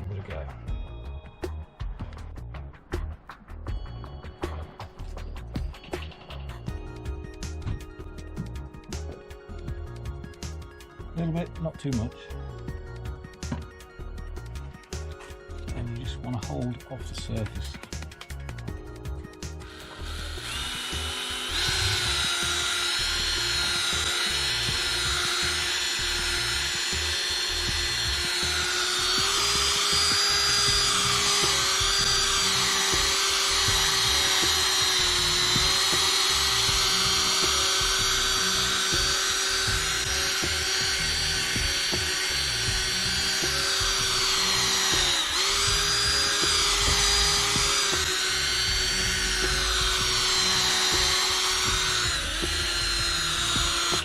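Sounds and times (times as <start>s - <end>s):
electric drill motor whining: 17.2s - 54.0s.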